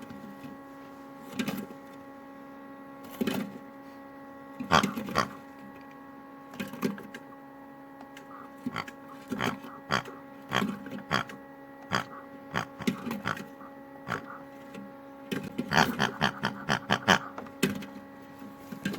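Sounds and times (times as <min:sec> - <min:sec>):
washing machine motor hum: 0:00.0 - 0:18.9.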